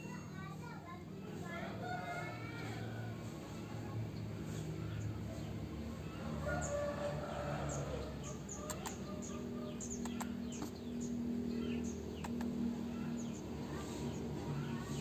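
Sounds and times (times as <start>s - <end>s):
small birds chirping: 2.6s - 15.0s
sharp clicks: 8.6s - 9.0s, 9.9s - 10.8s, 12.1s - 12.6s.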